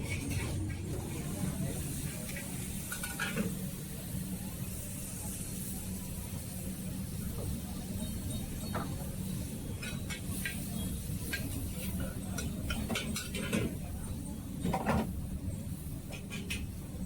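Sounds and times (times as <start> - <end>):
dishes and utensils clinking: 2.9 - 3.5.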